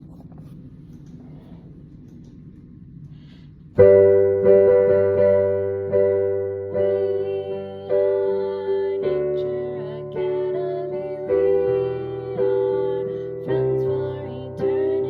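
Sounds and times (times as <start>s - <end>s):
piano chords: 3.7s - 15.0s.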